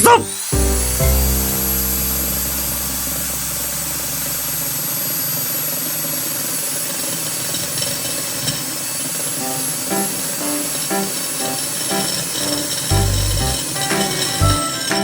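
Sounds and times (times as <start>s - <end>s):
core drill motor whine: 0.0s - 15.0s
low rumble: 0.7s - 5.1s.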